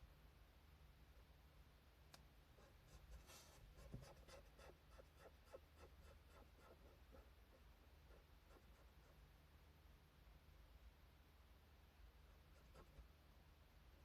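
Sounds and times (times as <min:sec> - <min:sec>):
drawing tool scratching on paper: 0:02.6 - 0:09.2, 0:12.5 - 0:13.0.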